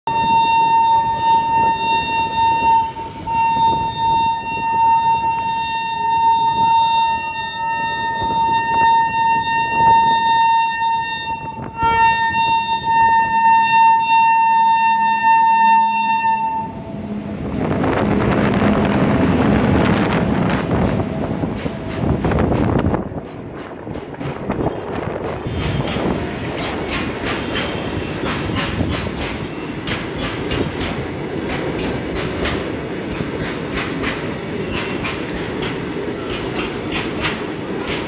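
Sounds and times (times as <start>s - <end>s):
locomotive horn blast: 0.1s - 19.8s
train rumbling past on rails: 0.1s - 38.0s.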